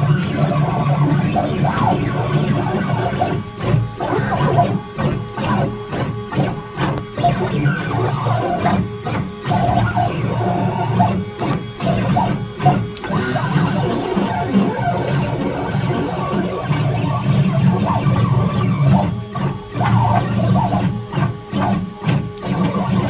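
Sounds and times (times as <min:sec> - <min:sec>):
stepper motors whining: 0:00.0 - 0:23.0.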